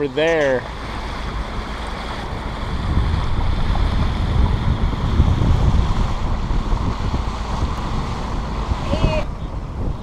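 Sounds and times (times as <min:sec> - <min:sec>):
water washing along hull: 0:00.0 - 0:10.0
wind buffeting microphone: 0:00.0 - 0:10.0.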